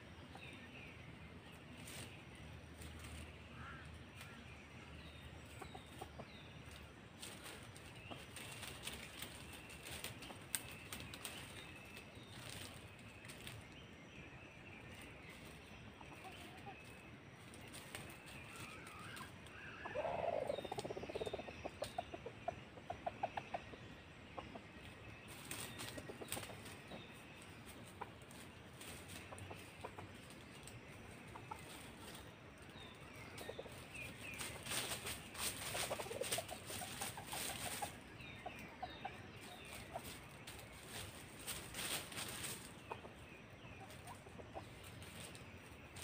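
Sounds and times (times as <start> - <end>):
roosters clucking: 0.0 - 46.0
rustling dry leaf litter: 6.6 - 13.8, 27.6 - 38.6, 39.4 - 43.0.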